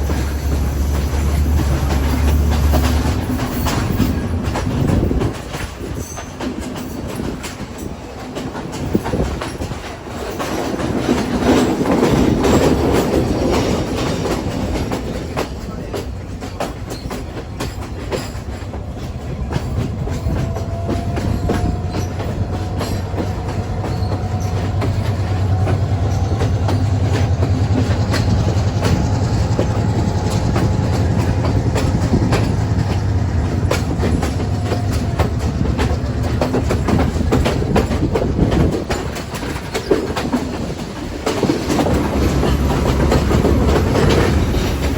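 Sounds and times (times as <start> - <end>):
train rumble: 0.0 - 44.9
train wheels clickety-clack: 0.0 - 44.9
faint high wheel squeal: 16.8 - 35.6.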